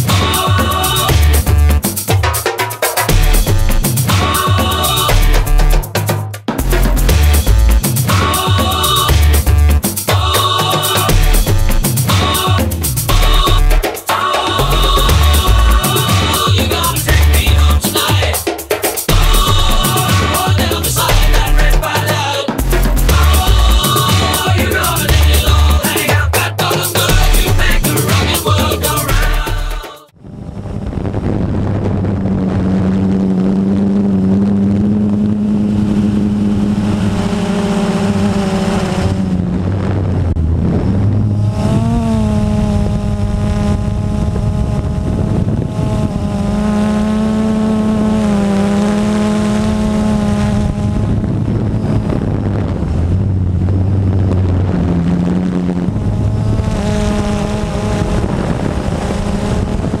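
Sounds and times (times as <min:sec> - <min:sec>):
motor running: 0:06.6 - 0:13.8, 0:14.4 - 0:17.8, 0:19.1 - 0:22.0, 0:41.4 - 0:52.7.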